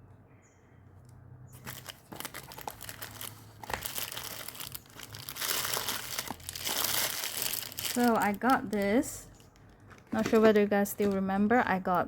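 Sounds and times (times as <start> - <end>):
packaging crinkling: 1.6 - 10.1.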